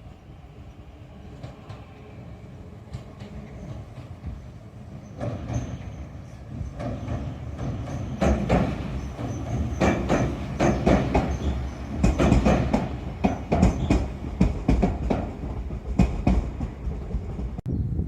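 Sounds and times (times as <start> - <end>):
electric train approaching: 0.0 - 17.6
train wheels clacking over rail joints: 5.1 - 17.6.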